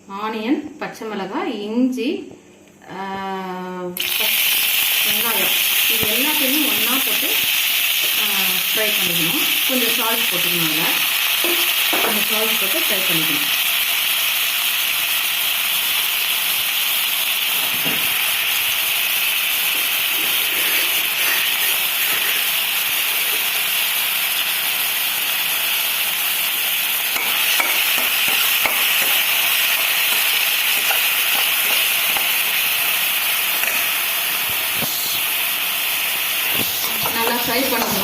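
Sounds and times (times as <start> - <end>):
vegetables sizzling in oil: 4.0 - 38.0
spoon scraping pan: 27.2 - 32.5, 36.5 - 38.0.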